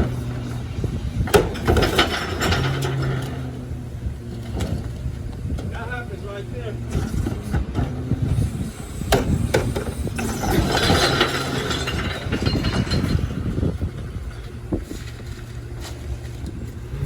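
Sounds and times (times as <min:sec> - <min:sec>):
recyclables clattering into hopper: 0:00.0 - 0:03.7, 0:09.2 - 0:17.0
truck engine running: 0:00.0 - 0:17.0.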